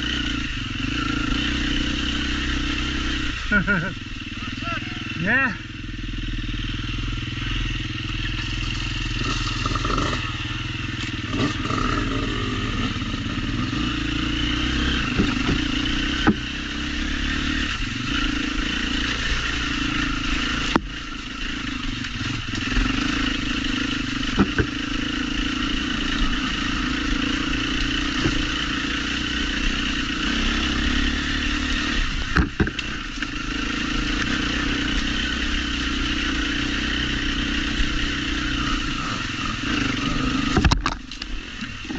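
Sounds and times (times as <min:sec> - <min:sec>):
motorcycle engine running: 0:00.0 - 0:41.9
knocks and clatter from bike: 0:15.0 - 0:16.6, 0:24.2 - 0:24.9, 0:27.9 - 0:28.6, 0:32.2 - 0:33.4, 0:40.5 - 0:41.9.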